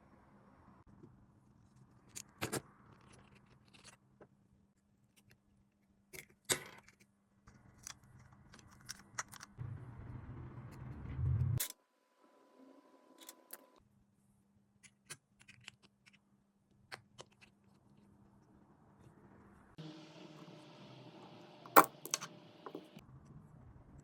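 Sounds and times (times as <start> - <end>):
low hum: 9.6 - 11.6, 19.4 - 24.0.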